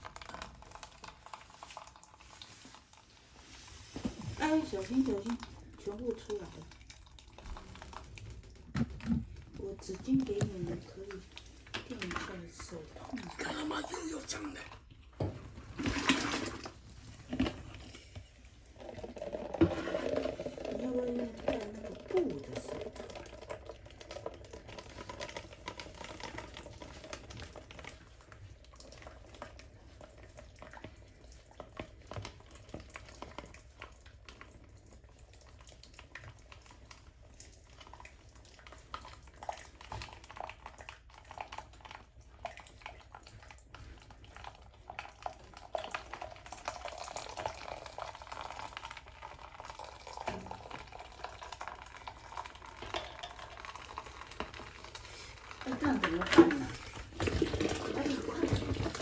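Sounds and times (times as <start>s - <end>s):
water running and splattering: 0.0s - 59.0s.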